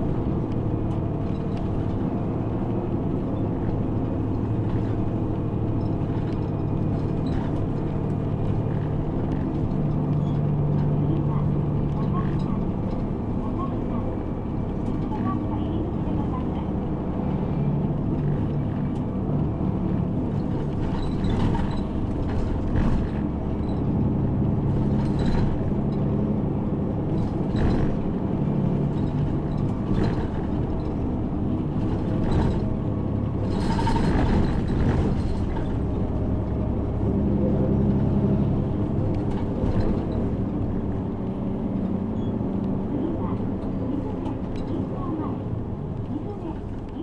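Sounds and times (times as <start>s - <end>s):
bus engine drone: 0.0s - 47.0s
low rumble: 0.0s - 47.0s
bodywork rattling: 20.2s - 26.2s, 27.0s - 36.6s.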